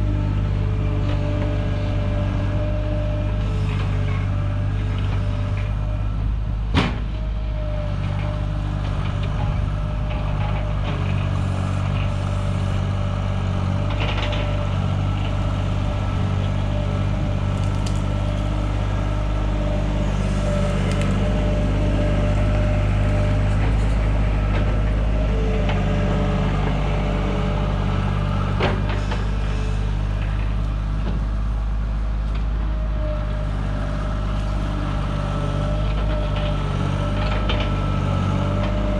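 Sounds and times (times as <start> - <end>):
loader engine running: 0.0 - 38.9.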